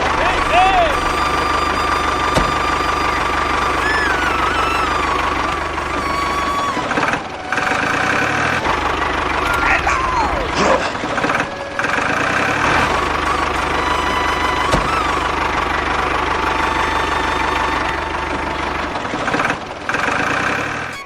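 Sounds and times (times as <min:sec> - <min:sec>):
engine-like mechanical running: 0:00.0 - 0:21.0.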